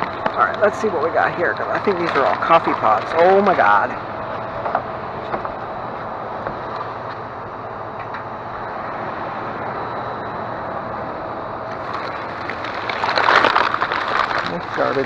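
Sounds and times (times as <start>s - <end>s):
plastic bag crinkling: 0.0s - 4.0s, 11.7s - 15.0s
background hum: 0.0s - 15.0s.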